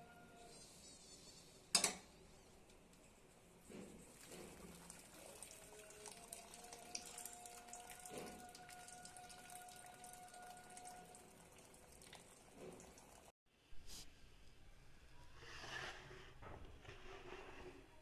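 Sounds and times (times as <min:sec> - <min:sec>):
faint water sounds: 0:03.6 - 0:13.3.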